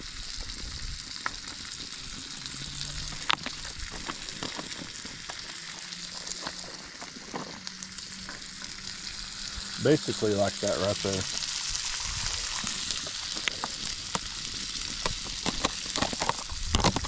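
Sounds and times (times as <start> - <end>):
vegetables sizzling on a griddle: 0.0 - 17.0.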